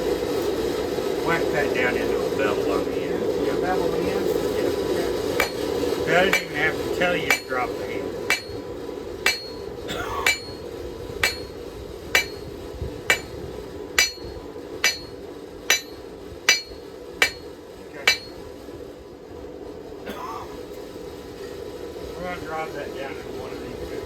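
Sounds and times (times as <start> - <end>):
steady low hum: 0.0 - 24.0
hammer striking steel on anvil: 5.4 - 13.4, 14.0 - 18.5.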